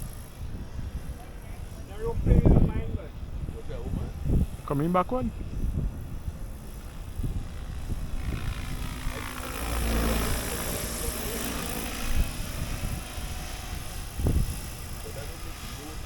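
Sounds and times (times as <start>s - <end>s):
helicopter rotor whirring: 0.0s - 16.0s
wind on microphone: 0.0s - 16.0s.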